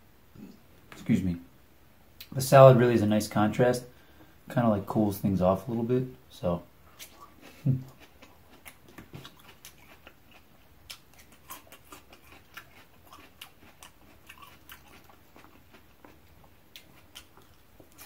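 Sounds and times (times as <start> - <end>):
person chewing crunchy salad: 6.9 - 18.0.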